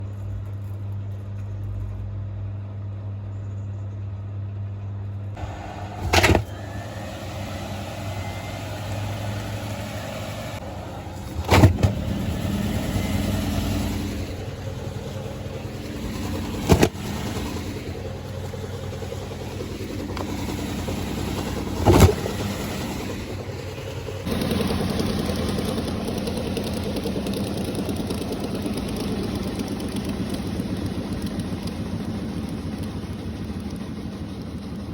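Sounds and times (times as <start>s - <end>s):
washing machine motor hum: 5.4s - 30.3s
washing machine churning: 5.4s - 32.0s
washing machine thud: 5.9s - 6.8s.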